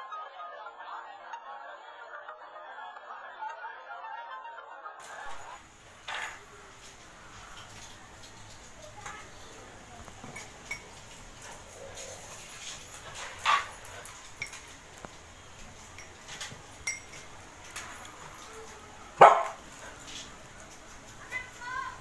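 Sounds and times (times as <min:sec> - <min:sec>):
metal spoon clinking on glass: 0:10.0 - 0:18.6.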